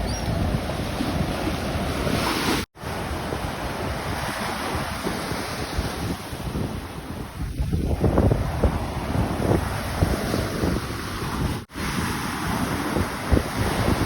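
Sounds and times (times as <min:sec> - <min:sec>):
wind buffeting microphone: 0:00.0 - 0:14.0
ocean surf breaking: 0:08.0 - 0:14.0.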